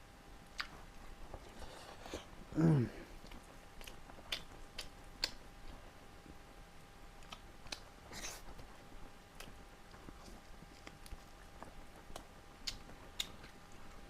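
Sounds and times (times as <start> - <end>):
chewing food: 0.4 - 14.0
person humming: 2.6 - 3.1
wet mouth clicks: 3.2 - 5.4, 10.8 - 13.6.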